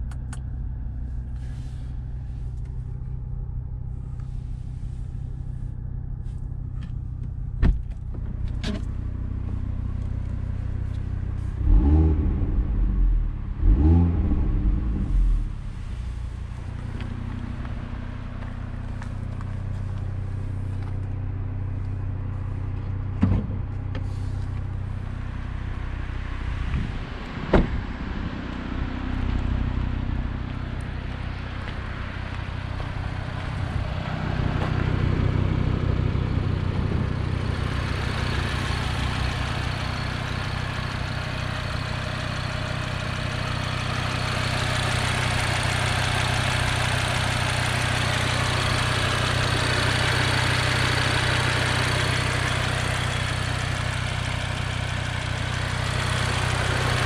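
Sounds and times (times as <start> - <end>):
car engine idling: 0.0 - 57.0
car door shutting: 7.6 - 8.9, 27.4 - 27.9.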